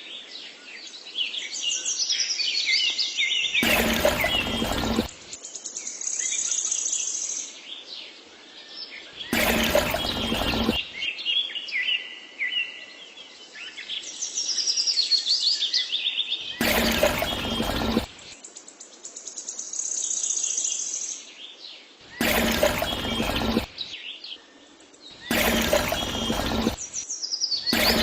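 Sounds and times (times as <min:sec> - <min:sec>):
loud full noise bursts: 0:03.6 - 0:05.1, 0:09.3 - 0:10.8, 0:16.6 - 0:18.2, 0:22.2 - 0:23.8, 0:25.3 - 0:26.9, 0:27.7 - 0:28.0.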